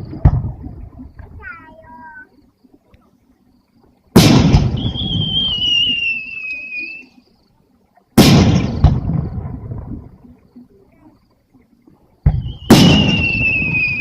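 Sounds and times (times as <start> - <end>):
firework bangs: 4.1 - 6.9, 8.2 - 10.0, 12.2 - 14.0
firework crack: 4.1 - 7.2, 8.2 - 10.1, 12.2 - 14.0
high falling whistle: 4.6 - 7.2, 12.4 - 14.0.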